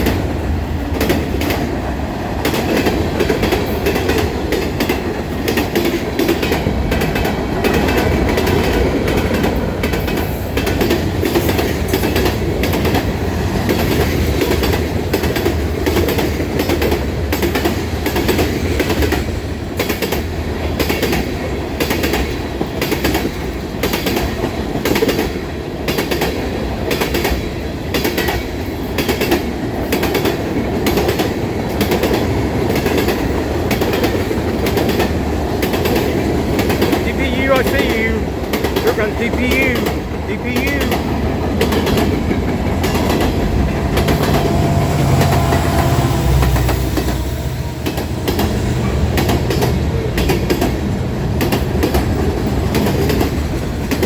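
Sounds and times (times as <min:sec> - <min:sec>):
train cars rumbling on rails: 0:00.0 - 0:54.0
wheels clicking over rail joints: 0:39.7 - 0:45.8.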